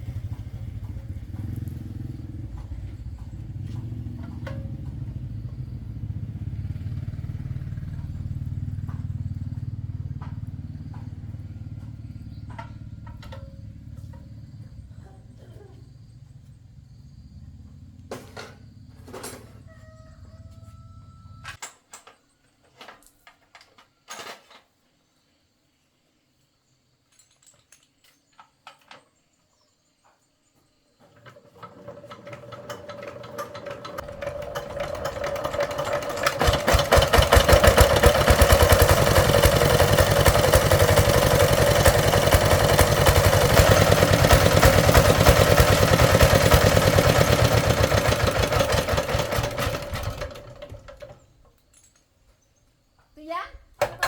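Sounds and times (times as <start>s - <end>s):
engine running: 0.0s - 15.4s, 31.4s - 51.2s.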